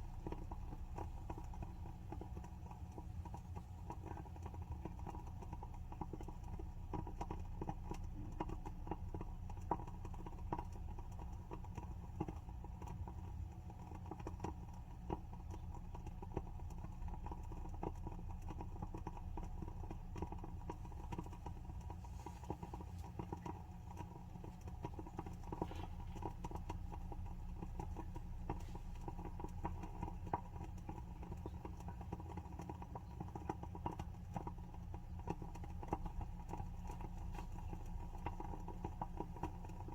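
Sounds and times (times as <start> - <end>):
candle wick crackling: 0.0 - 39.9
steady low hum: 0.0 - 39.9.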